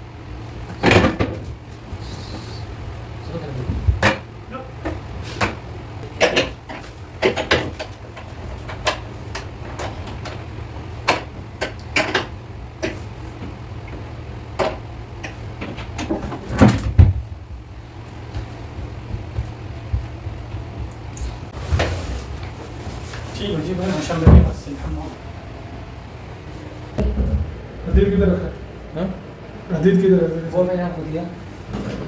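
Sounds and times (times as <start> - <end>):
steady low hum: 0.0 - 32.0
knocks and clicks of tools: 3.8 - 10.4.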